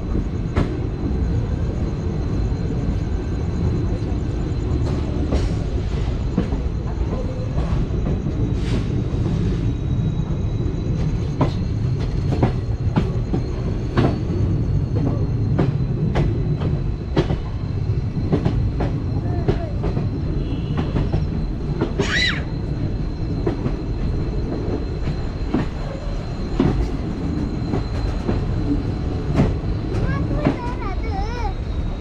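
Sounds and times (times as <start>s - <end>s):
train coach rumbling on track: 0.0s - 32.0s
wheels clicking over rail joints: 23.3s - 31.4s.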